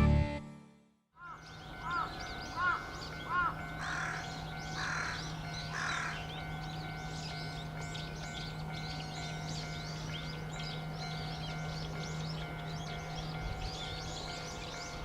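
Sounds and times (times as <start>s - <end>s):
crow cawing: 1.2s - 6.3s
faint high birdsong: 1.2s - 15.0s.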